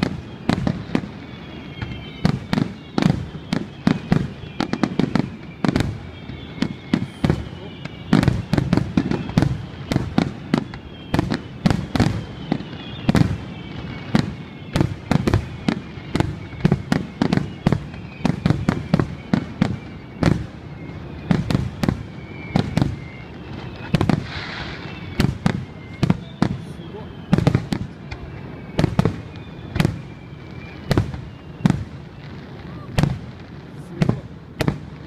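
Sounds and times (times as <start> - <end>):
fireworks shell bursts: 23.6 - 25.2.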